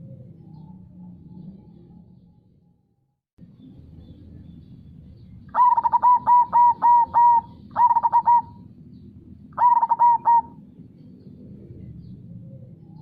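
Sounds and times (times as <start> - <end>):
low steady background noise: 3.4 - 13.0
dove cooing: 5.5 - 8.7, 9.5 - 10.6.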